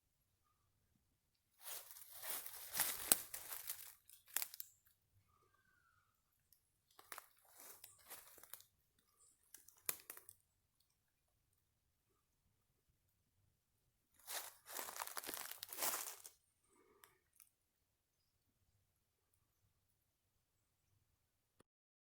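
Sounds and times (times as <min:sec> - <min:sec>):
dry twigs and leaves crunching: 0:01.6 - 0:04.8, 0:07.0 - 0:08.7, 0:09.5 - 0:10.4, 0:14.2 - 0:16.4.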